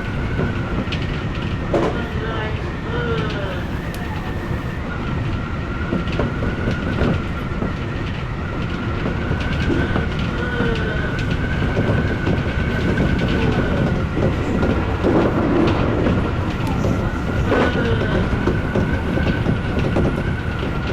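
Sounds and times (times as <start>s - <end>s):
high-pitched train whine: 0.0s - 20.9s
wheels rumbling on rail: 0.0s - 20.9s
clicks and clacks over track: 5.3s - 20.9s.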